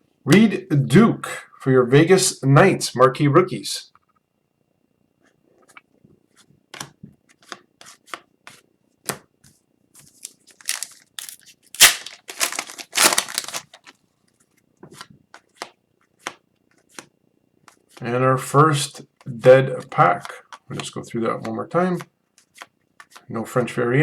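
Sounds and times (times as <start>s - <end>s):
cards rustling and snapping: 10.0s - 14.0s
foil wrapper tearing: 10.2s - 13.9s.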